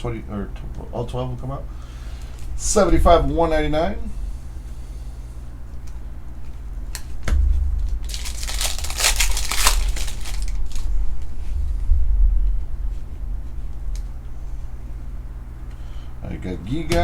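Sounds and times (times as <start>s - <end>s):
foil wrapper tearing and crinkling: 7.8s - 11.0s.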